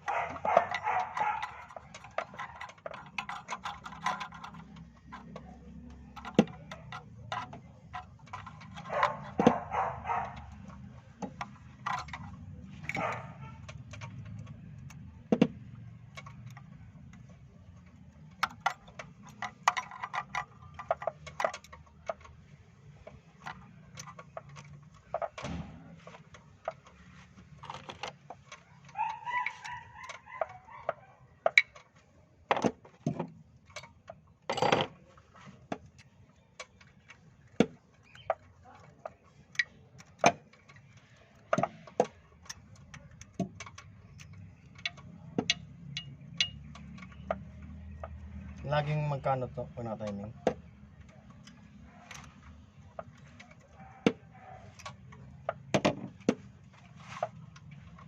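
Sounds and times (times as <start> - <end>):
sharp ticks and clicks: 42.4 - 48.5.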